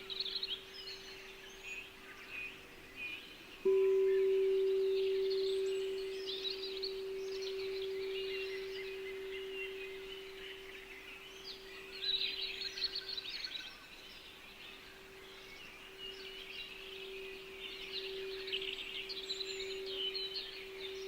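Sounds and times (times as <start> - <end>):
songbirds chirping: 0.0 - 21.0
steady low pure tone: 3.6 - 13.3, 15.3 - 21.0.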